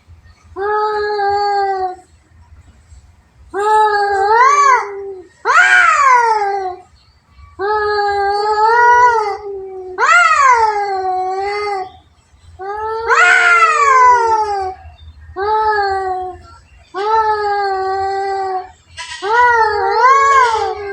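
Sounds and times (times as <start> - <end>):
cats yowling in a fight: 3.7 - 6.8, 8.2 - 11.9, 12.8 - 16.4, 17.0 - 20.9.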